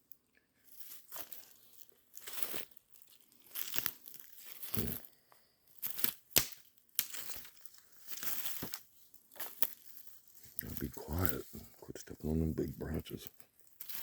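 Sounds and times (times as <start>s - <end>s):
footsteps crunching through dry leaves: 0.7s - 4.7s, 7.1s - 11.4s
twig snapping: 3.5s - 5.0s, 5.8s - 8.8s.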